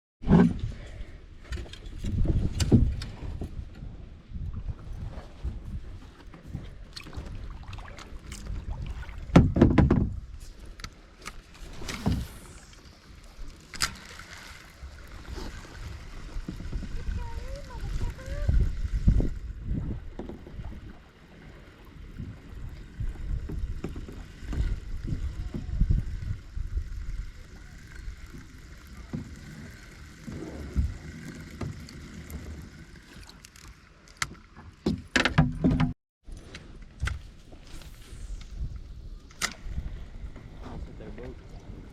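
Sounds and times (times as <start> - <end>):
wind rumble on microphone: 0.2 - 10.9, 14.8 - 21.0, 22.0 - 33.0, 35.6 - 41.9
knocks against kayak hull: 9.3 - 10.2.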